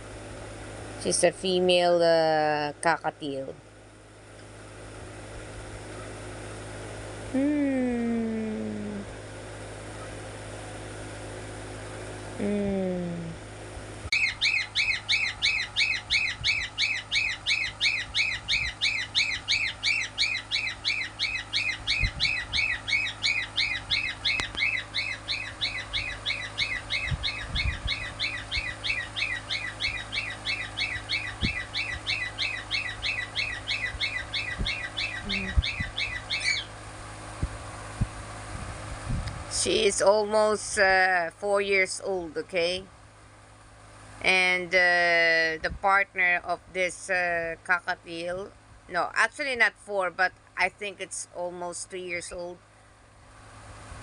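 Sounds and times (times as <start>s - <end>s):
cockatiel chirping: 14.2s - 36.7s.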